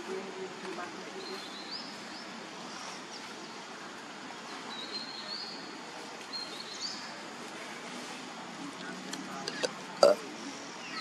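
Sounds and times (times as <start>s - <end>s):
steady outdoor hiss: 0.0s - 11.0s.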